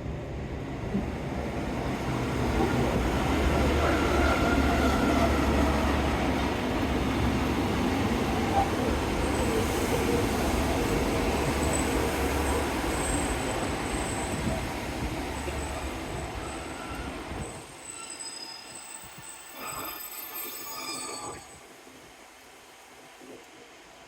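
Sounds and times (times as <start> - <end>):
train rumble: 0.0 - 17.8
high wheel squeal: 15.4 - 21.6.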